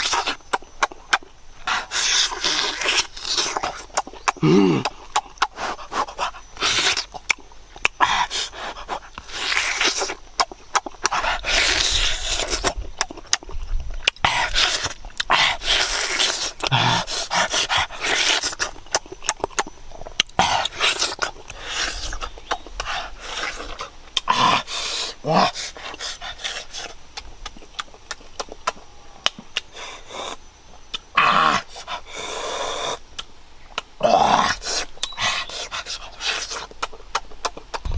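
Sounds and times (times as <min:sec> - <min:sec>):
mouth clicks: 0:00.0 - 0:37.9
wet chewing and smacking: 0:00.0 - 0:37.9
breathy hissing: 0:01.5 - 0:10.2, 0:14.2 - 0:18.8, 0:20.4 - 0:27.0, 0:31.2 - 0:33.1
person voicing aah: 0:04.4 - 0:05.0.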